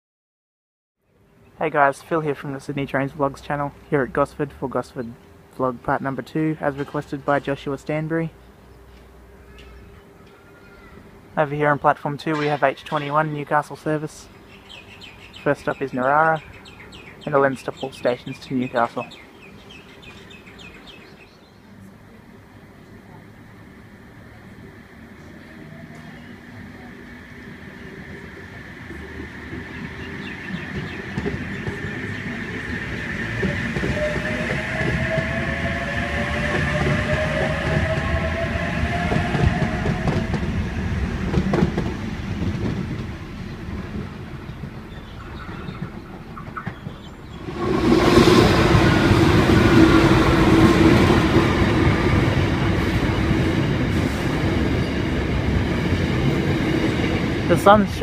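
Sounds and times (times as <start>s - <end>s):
freight train rumbling past: 1.6s - 10.3s, 11.0s - 58.0s
electric train motor whine: 25.9s - 43.5s.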